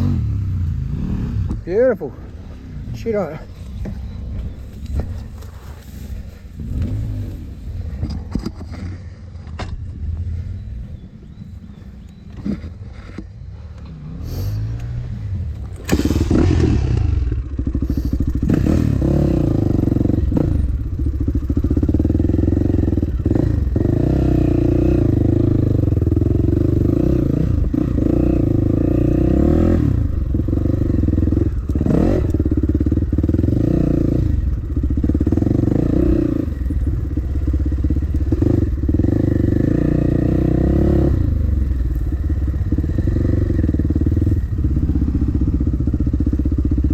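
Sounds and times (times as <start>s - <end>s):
dirt bike engine revving: 12.5s - 46.9s.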